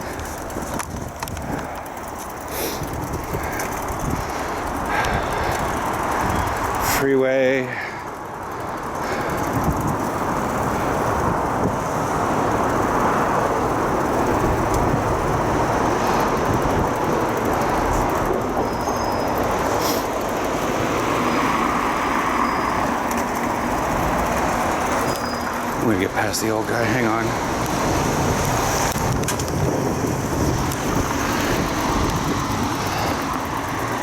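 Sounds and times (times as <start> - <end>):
freeway traffic rushing: 0.0 - 34.0.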